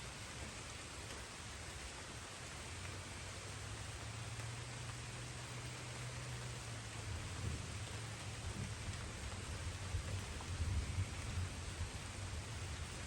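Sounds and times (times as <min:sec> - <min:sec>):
light rain falling: 0:00.0 - 0:13.0.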